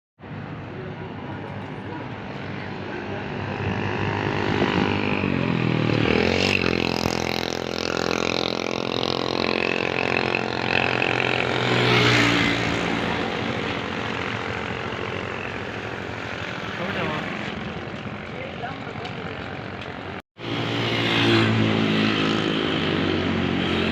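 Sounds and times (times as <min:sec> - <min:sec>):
motorcycle engine running: 0:03.0 - 0:20.2.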